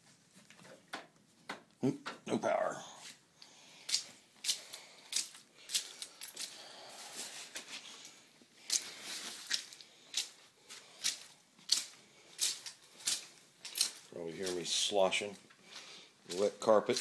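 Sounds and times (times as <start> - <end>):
footsteps squelching on wet carpet: 8.6 - 17.0.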